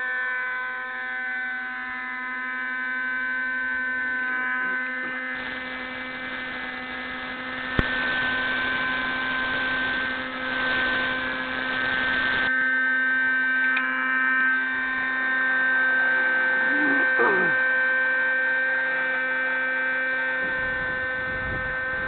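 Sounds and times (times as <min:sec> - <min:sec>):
small glow engine whining: 0:00.0 - 0:22.0.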